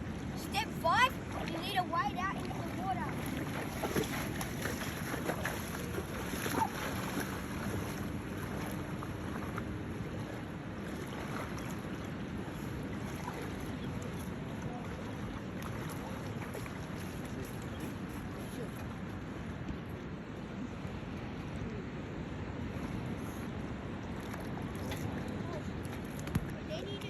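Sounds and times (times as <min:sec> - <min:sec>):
water: 0:00.0 - 0:27.0.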